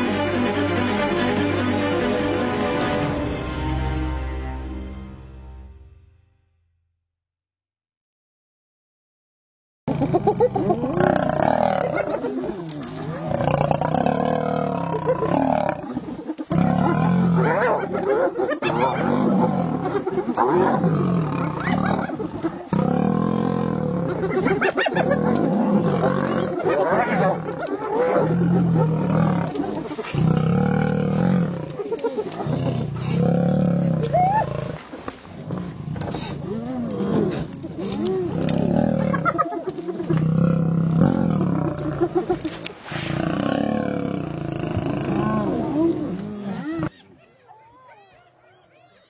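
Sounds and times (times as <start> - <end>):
high hyena giggling: 9.9 - 11.2, 24.1 - 29.0, 37.3 - 40.3
lions growling and snarling: 9.9 - 47.0.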